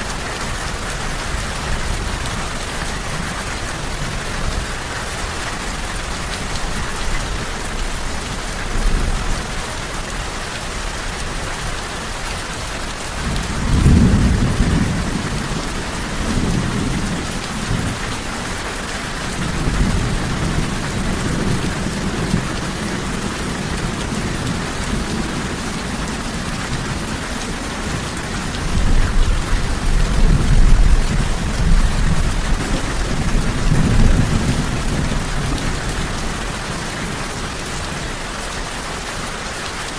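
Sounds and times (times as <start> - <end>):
heavy rain: 0.0 - 39.9
rolling thunder: 13.2 - 18.6, 19.3 - 37.2.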